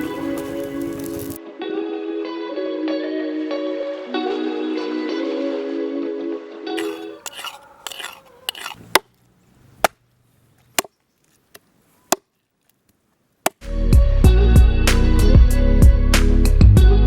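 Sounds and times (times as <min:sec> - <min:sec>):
utensil scraping in a pan: 0:00.0 - 0:01.4, 0:06.8 - 0:09.9.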